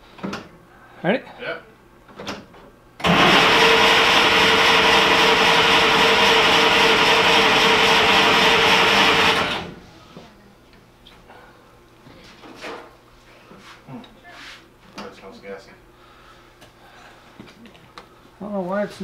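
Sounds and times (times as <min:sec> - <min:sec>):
starter motor cranking engine: 0:03.0 - 0:09.8.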